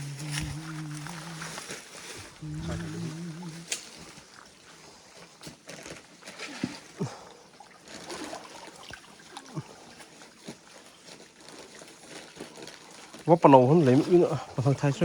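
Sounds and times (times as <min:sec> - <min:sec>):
stream water trickling: 0:00.2 - 0:15.0
water drips and plops: 0:06.2 - 0:10.7.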